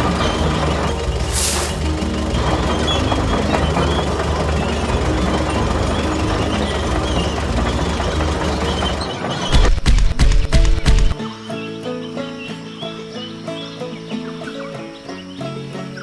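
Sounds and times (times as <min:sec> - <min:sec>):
low choppy thumps: 0:00.0 - 0:11.2
small engine knocking rumble: 0:00.0 - 0:11.2.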